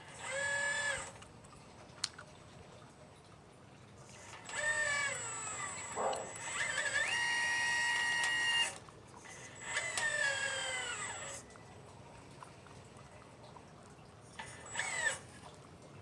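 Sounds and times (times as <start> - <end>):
model excavator motors whining: 0.0 - 1.2, 4.1 - 11.5, 14.4 - 15.3.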